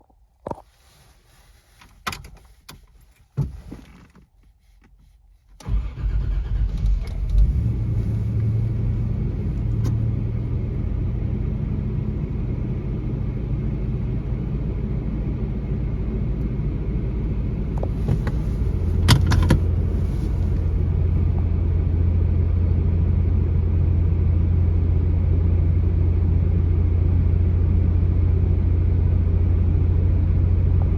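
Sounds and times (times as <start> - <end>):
car engine idling: 5.6 - 12.1, 17.4 - 25.1.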